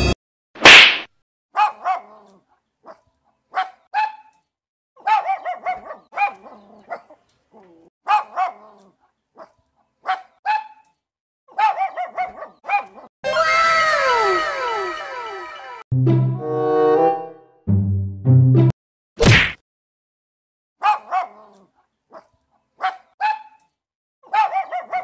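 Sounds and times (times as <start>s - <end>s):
puppies yipping: 5.0s - 8.8s, 9.4s - 10.8s, 11.6s - 13.1s, 24.3s - 25.0s.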